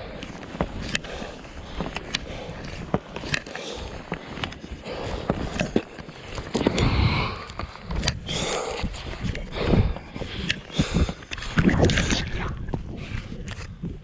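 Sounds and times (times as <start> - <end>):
skis scraping over snow: 0.0 - 6.8
wind buffeting microphone: 6.3 - 14.0.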